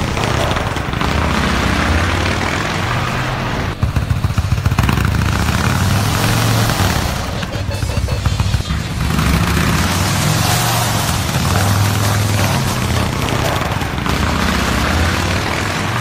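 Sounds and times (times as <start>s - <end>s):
motorcycle engine idling: 2.9s - 10.0s.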